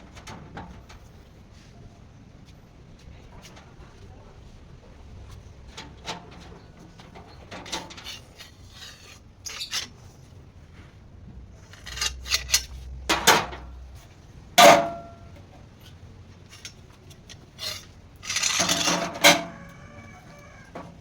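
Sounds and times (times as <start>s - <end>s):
metal pieces clinking: 11.7s - 12.7s, 17.6s - 19.4s.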